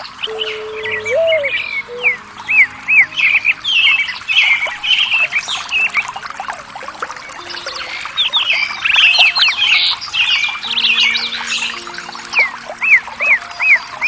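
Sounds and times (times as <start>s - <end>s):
birds chirping and squawking: 0.0s - 6.1s.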